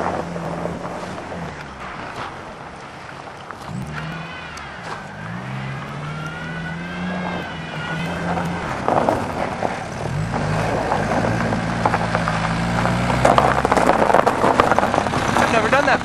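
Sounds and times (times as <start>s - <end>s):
diesel engine revving: 0.0s - 16.0s
high whine: 0.0s - 16.0s
rough irregular rattle: 6.6s - 16.0s.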